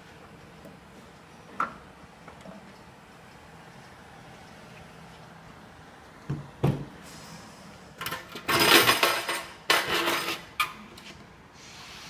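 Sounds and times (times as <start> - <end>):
metal rattling and clinking: 8.0 - 10.5.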